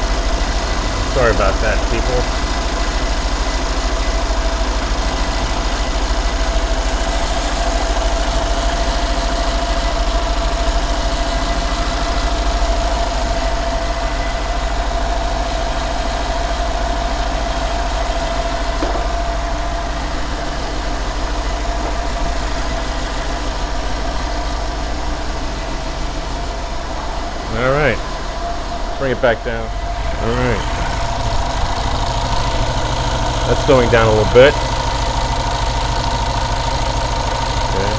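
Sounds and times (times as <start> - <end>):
steady whine: 0.0 - 7.4, 17.8 - 37.9
car engine idling: 0.0 - 37.9.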